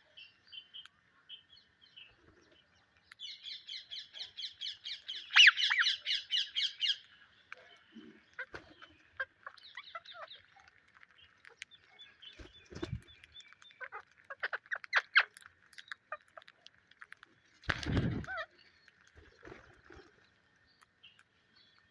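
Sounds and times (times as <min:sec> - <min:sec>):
parakeets calling: 0:03.5 - 0:07.1, 0:08.3 - 0:10.6, 0:12.1 - 0:15.4, 0:17.7 - 0:18.6.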